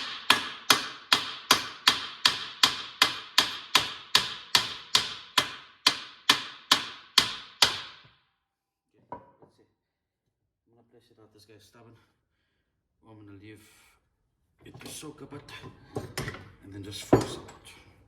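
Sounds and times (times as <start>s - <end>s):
hammer striking metal: 0.0s - 8.0s.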